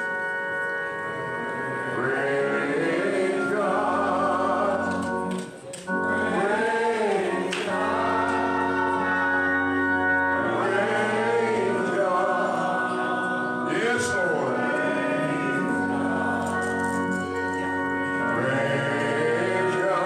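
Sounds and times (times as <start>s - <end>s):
choir singing gospel: 0.0s - 20.0s
organ chords: 0.0s - 20.0s.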